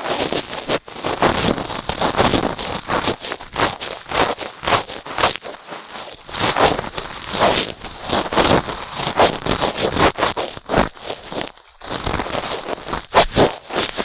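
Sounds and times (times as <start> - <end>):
cotton swab scraping microphone: 6.1 - 11.4.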